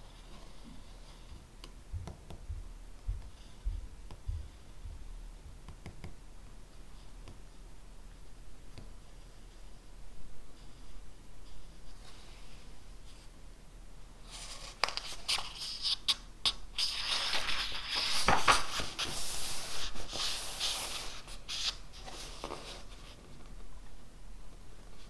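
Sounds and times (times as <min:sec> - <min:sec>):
paper rustling: 0:14.2 - 0:23.5.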